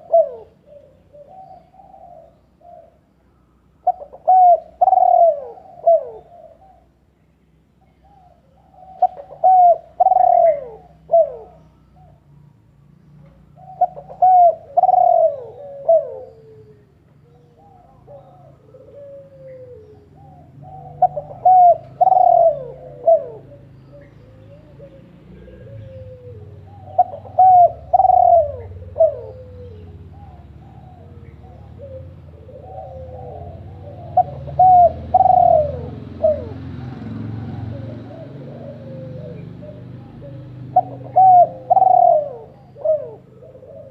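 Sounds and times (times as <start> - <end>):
bird calling: 0.0 - 7.0, 7.8 - 12.4, 13.3 - 43.9.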